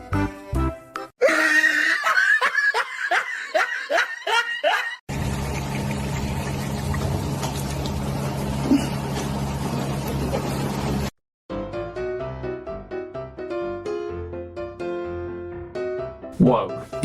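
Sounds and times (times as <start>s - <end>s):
person laughing: 1.2s - 5.0s, 8.6s - 9.0s.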